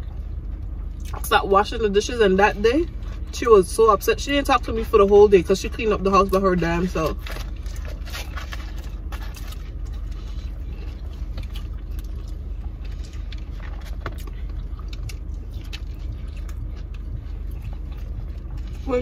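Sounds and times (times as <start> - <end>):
clicks and rustles of food: 6.1 - 18.9.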